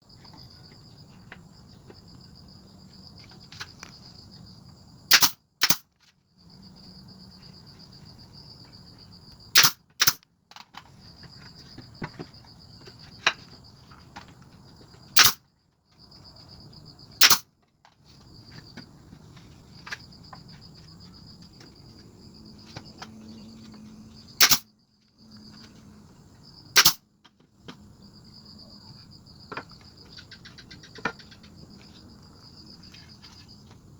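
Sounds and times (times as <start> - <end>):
sharp wood cracks: 5.1 - 5.8, 9.6 - 10.8, 15.2 - 15.4, 17.2 - 17.5, 24.4 - 24.7, 26.8 - 27.0.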